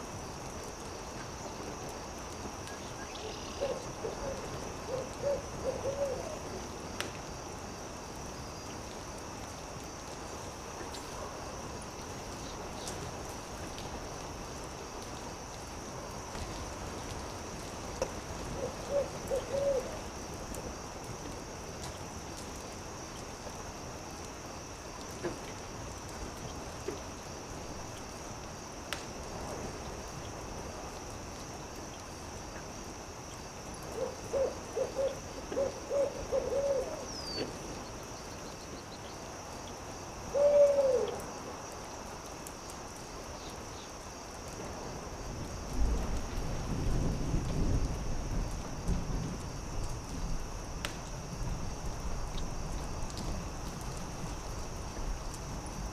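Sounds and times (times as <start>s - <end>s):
campfire crackling: 0.0s - 40.4s, 41.0s - 55.9s
steady high hiss: 0.0s - 55.9s
owl hooting: 3.2s - 6.4s, 18.6s - 20.0s, 34.0s - 37.5s, 40.3s - 41.2s.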